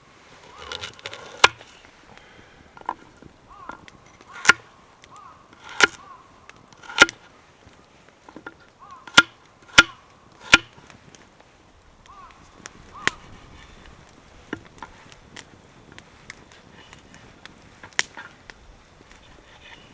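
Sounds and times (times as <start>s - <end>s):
axe chopping firewood: 0.4s - 7.2s, 8.3s - 10.8s, 17.8s - 18.3s.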